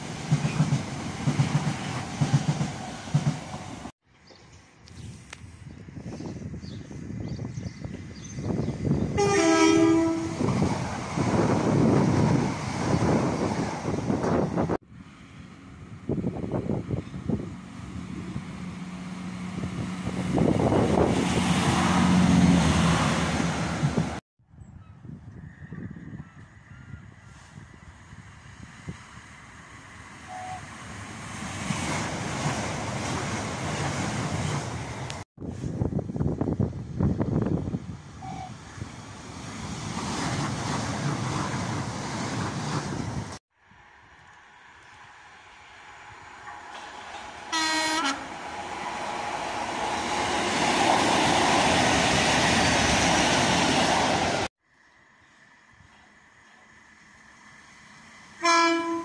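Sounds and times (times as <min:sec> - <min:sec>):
train engine hum: 0:00.0 - 0:24.2, 0:24.8 - 0:59.0
train wheel and rail noise: 0:00.0 - 0:59.0
wind buffeting microphone: 0:04.9 - 0:15.1, 0:15.7 - 0:22.0, 0:23.4 - 0:29.4, 0:31.7 - 0:43.4.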